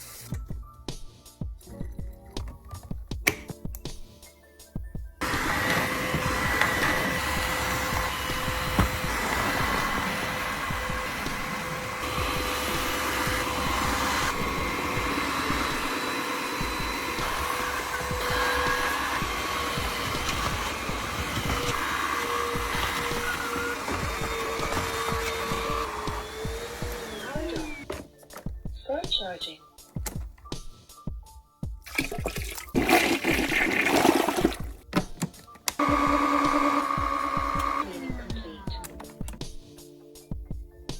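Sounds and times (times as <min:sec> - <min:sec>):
vacuum mop motor whine: 0:05.2 - 0:28.1, 0:35.8 - 0:38.7
water flushed and sucked up: 0:31.9 - 0:34.8.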